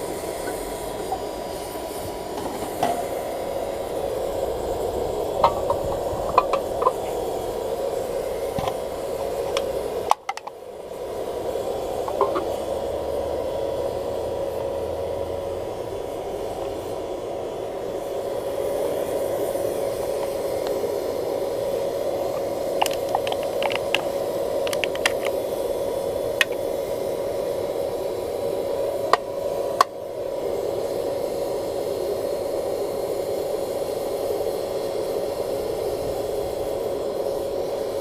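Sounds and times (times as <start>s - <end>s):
air blower whirring: 0.0s - 38.0s
sharp clicks and crackles: 22.8s - 25.4s.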